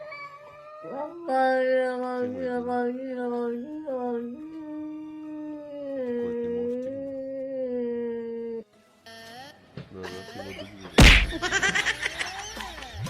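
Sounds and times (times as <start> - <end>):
dog howling: 0.0 - 8.6.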